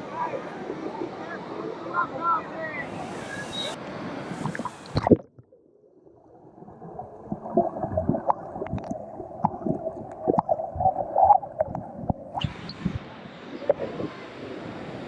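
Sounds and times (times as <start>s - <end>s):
underwater gurgling and bubbling: 4.4s - 14.6s.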